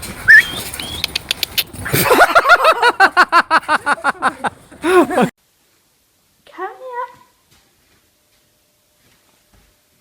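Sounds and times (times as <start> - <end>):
sharp clicks: 0.8 - 1.8.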